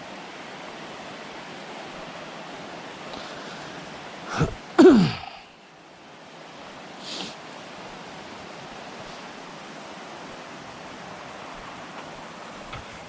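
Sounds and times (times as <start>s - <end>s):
person making short vocal sounds: 4.3s - 5.4s.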